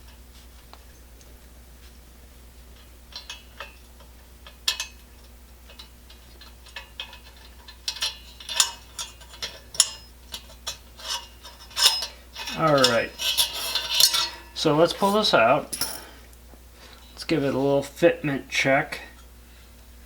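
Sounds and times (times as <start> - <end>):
small metal parts clicking: 4.4 - 14.4.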